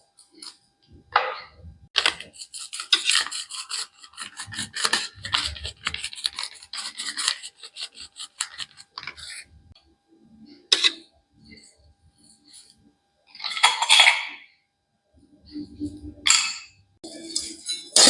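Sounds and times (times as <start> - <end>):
utensil scraping dry rice in vessel: 2.0 - 9.5.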